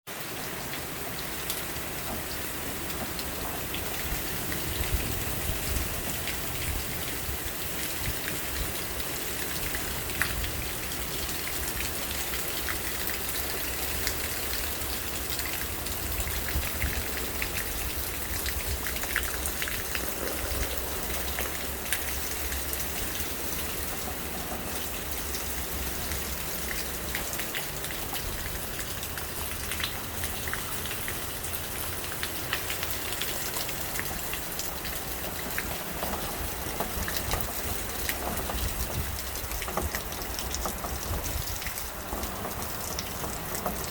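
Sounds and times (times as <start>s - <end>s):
raindrops tapping surfaces: 0.1s - 43.9s
steady rain: 0.1s - 43.9s
wind rumble on microphone: 3.3s - 12.0s, 15.6s - 26.6s, 35.5s - 43.9s.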